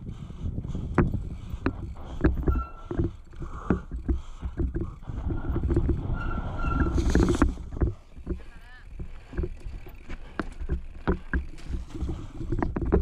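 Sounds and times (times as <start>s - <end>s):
wind on microphone: 0.0s - 8.0s
bicycle tyres rumbling on dirt: 0.0s - 13.0s
bike rattling and knocking: 0.0s - 13.0s
brief high squeaks: 6.2s - 7.3s.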